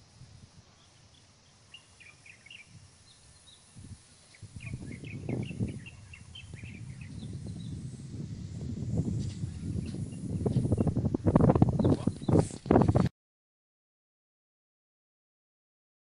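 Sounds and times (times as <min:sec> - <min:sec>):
small birds chirping: 0:00.7 - 0:08.0, 0:09.2 - 0:11.0, 0:11.7 - 0:12.6
low rustling rumble: 0:02.8 - 0:13.1.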